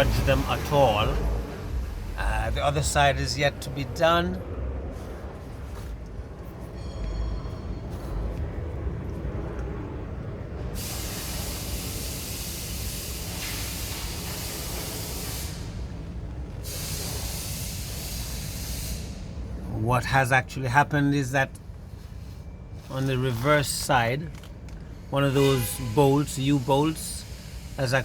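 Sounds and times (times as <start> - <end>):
steady hiss: 0.0 - 3.7, 10.8 - 19.4, 25.0 - 28.0
low rumble: 0.0 - 10.8.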